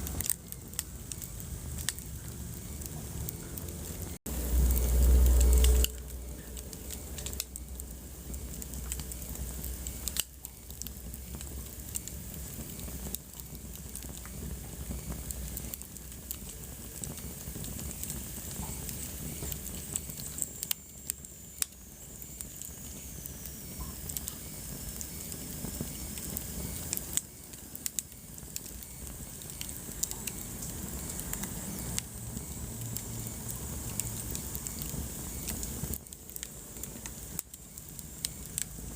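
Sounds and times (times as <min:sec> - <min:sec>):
wood fire crackling: 0:00.0 - 0:38.9
low rumble: 0:00.8 - 0:10.2.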